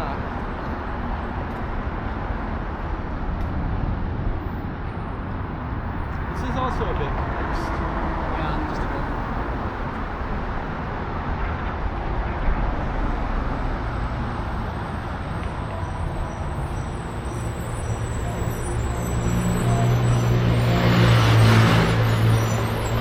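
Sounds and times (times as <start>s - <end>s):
city traffic noise: 0.0s - 23.0s
vehicle engine approaching: 12.8s - 23.0s.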